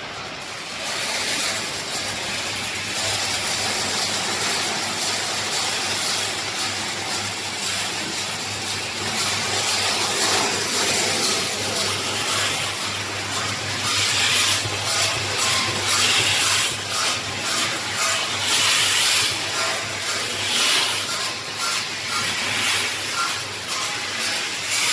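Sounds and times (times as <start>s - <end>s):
machinery hiss: 11.8s - 24.9s.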